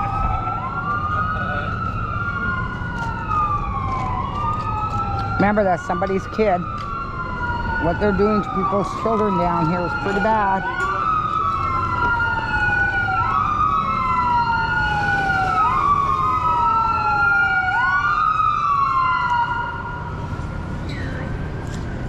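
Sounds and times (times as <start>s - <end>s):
fire truck siren wailing: 0.0s - 22.0s
low traffic rumble: 0.0s - 22.0s.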